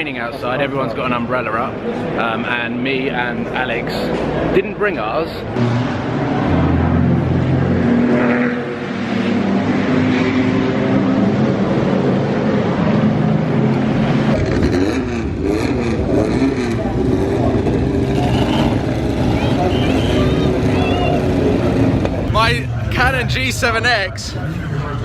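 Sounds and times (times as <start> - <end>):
car engines revving: 0.0 - 25.0.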